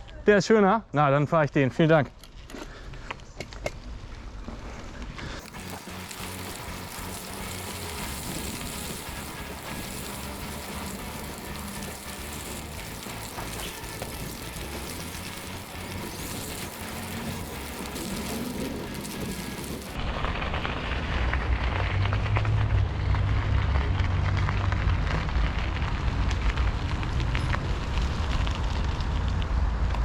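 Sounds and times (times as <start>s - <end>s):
bicycle tyres rolling on a trail: 2.2s - 30.0s.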